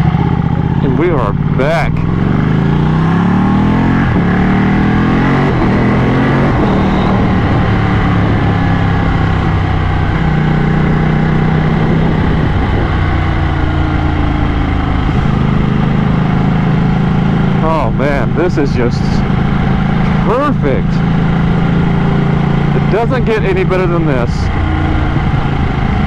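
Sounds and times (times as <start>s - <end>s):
wind noise: 0.0s - 18.5s, 24.1s - 26.0s
motorcycle engine accelerating: 0.0s - 26.0s.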